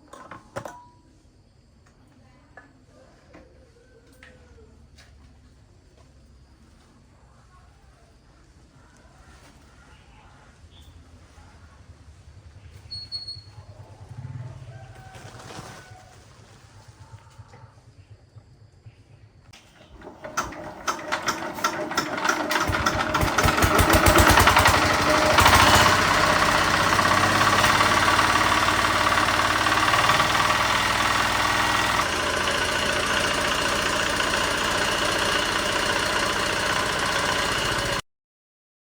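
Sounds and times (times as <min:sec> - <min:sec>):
diesel engine starting and running: 0:19.5 - 0:38.0.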